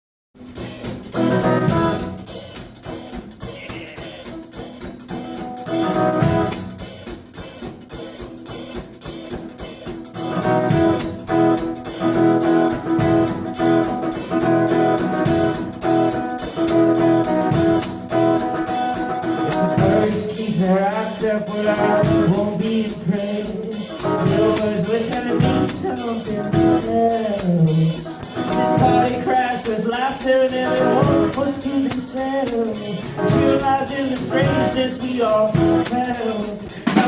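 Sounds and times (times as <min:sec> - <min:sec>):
guitar chords: 0:00.4 - 0:04.4, 0:05.0 - 0:07.0, 0:10.0 - 0:37.0
drum kit beat: 0:00.4 - 0:37.0.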